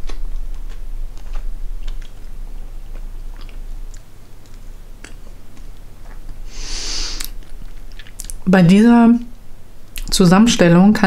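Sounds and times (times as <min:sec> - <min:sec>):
wet chewing clicks and smacks: 0:00.0 - 0:06.4, 0:07.2 - 0:08.4
low steady hum: 0:00.0 - 0:11.0.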